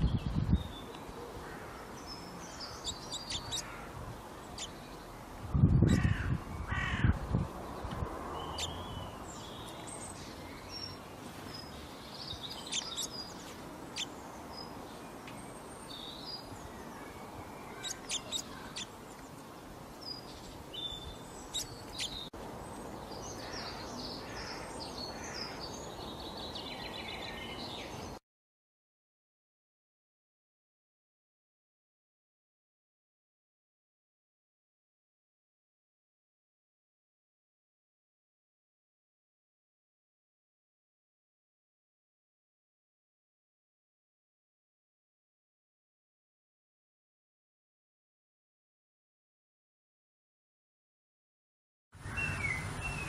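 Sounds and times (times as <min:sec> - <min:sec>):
small birds chirping: 0:00.0 - 0:28.2, 0:52.0 - 0:53.0
louder lower bird calls: 0:00.9 - 0:04.8, 0:12.4 - 0:13.4, 0:16.0 - 0:18.9.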